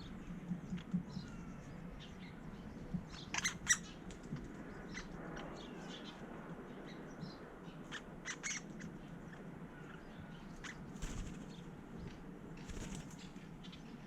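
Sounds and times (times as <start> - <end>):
bird ticks and chirps: 0.0 - 5.1
faint steady hum: 0.0 - 14.0.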